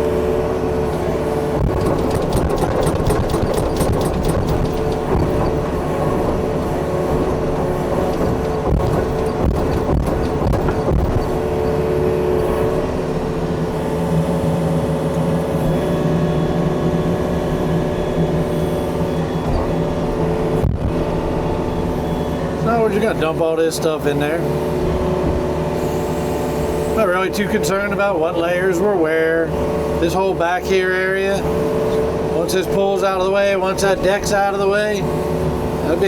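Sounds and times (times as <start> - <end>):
excavator diesel engine running: 0.0 - 36.0
knocks: 1.6 - 5.6, 8.0 - 11.4.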